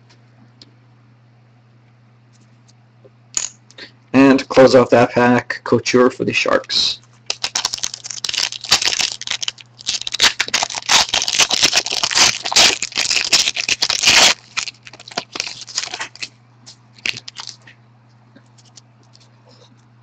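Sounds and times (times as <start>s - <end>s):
foil pack crinkling and tearing: 7.2s - 16.4s, 17.0s - 17.8s.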